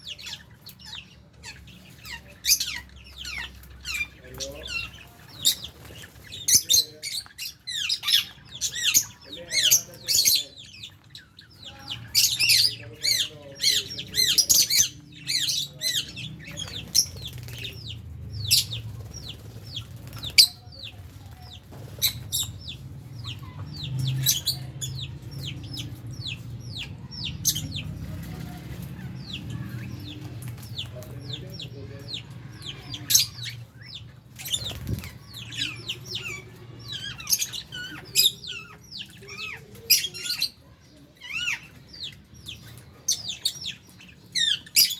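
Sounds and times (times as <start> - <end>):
birds chirping and calling: 0.0 - 44.9.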